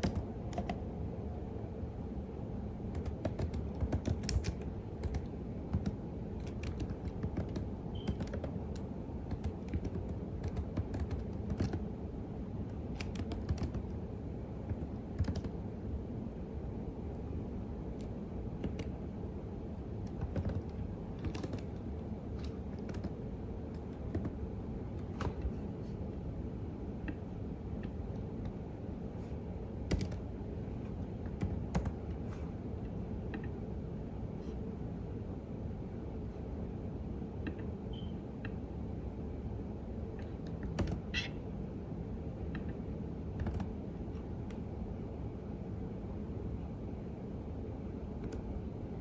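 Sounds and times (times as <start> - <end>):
typing on a keyboard: 0.0 - 0.8, 2.9 - 11.9, 12.7 - 14.0, 14.7 - 15.6, 18.0 - 19.0, 20.0 - 21.8, 22.4 - 24.4, 29.9 - 30.2, 31.3 - 32.2, 40.2 - 41.2, 43.3 - 43.8
low background hum: 0.0 - 49.0.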